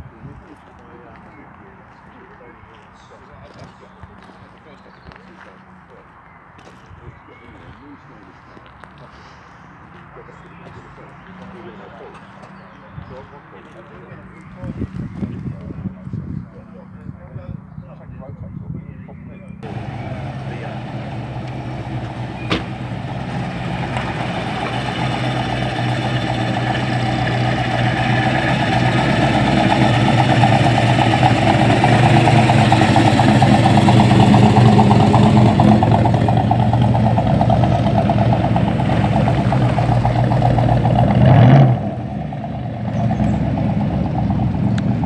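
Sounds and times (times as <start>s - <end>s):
loud car engine passing: 19.6s - 45.0s.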